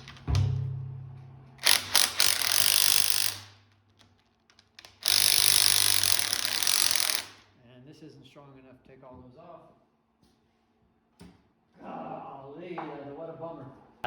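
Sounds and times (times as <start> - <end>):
low hum: 0.1 - 1.6
power wrench whirring: 1.6 - 3.7, 4.9 - 7.4.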